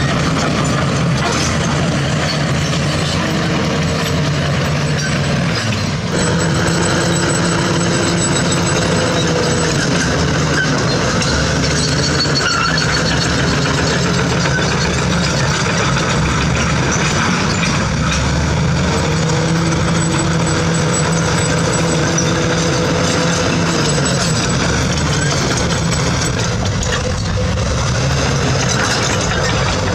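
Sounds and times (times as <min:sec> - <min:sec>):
diesel construction machinery running: 0:00.0 - 0:29.9.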